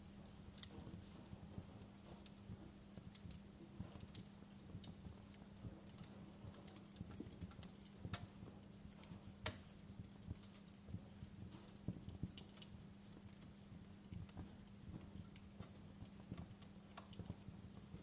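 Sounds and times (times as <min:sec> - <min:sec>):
steady low hum: 0:00.0 - 0:18.0
wood fire crackling: 0:00.0 - 0:18.0.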